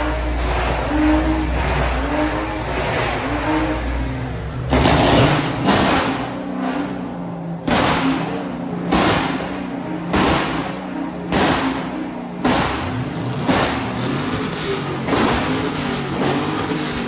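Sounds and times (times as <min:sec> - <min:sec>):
car engine revving: 0:00.0 - 0:17.0
sudden loud bursts: 0:07.6 - 0:17.0.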